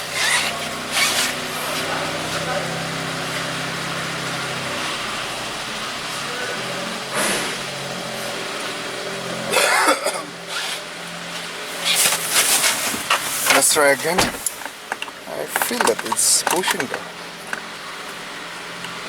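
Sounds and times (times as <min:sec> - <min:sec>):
car engine idling: 0:00.0 - 0:19.0
loud cough: 0:09.5 - 0:10.4.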